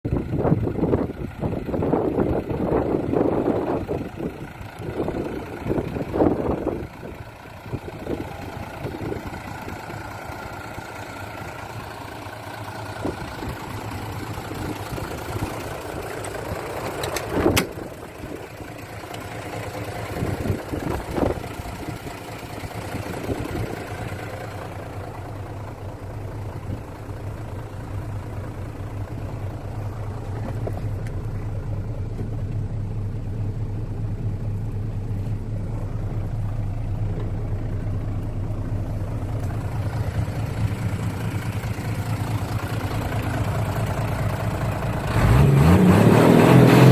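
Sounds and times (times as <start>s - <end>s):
diesel truck engine idling: 0.0s - 46.9s
engine knock: 0.1s - 45.4s.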